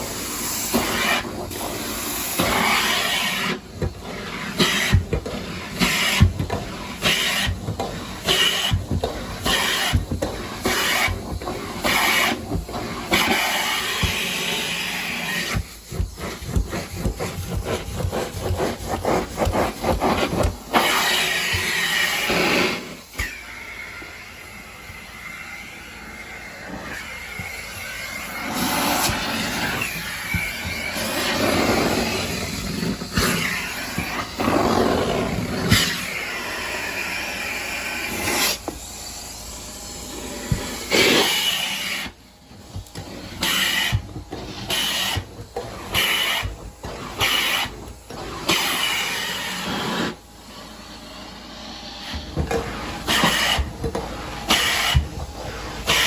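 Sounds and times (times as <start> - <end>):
rapid scrubbing strokes: 2.6 - 23.0.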